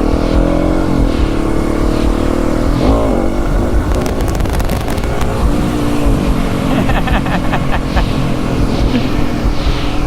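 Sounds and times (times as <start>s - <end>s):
low rumble: 0.0s - 10.0s
motorcycle engine running: 0.0s - 10.0s.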